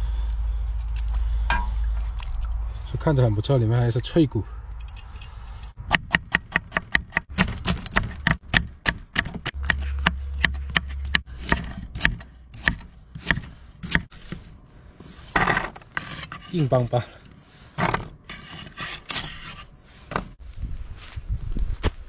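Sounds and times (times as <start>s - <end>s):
low rumble: 0.0s - 5.9s, 9.4s - 13.8s.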